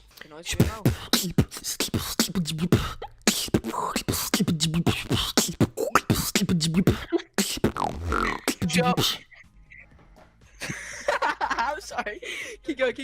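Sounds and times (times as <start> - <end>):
beatboxing beat: 0.5 - 9.4
hummed bass line: 4.4 - 9.2.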